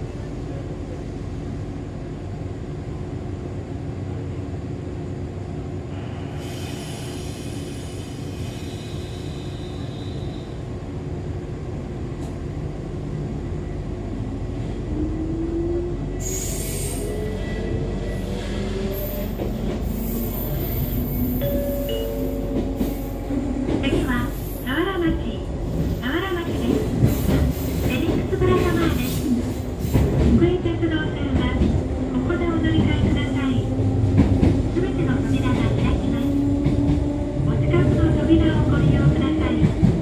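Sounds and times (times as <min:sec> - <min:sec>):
wheels squealing on rails: 0:16.2 - 0:22.0.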